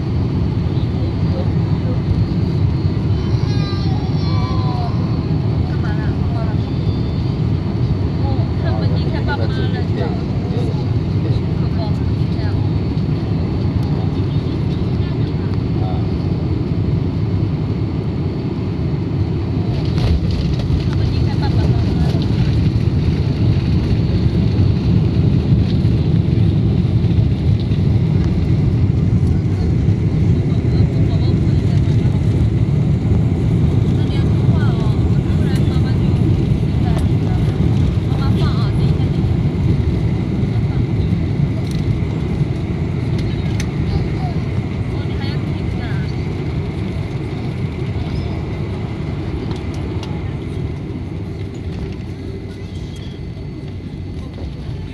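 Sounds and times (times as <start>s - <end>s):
jet engine low rumble: 0.0s - 54.9s.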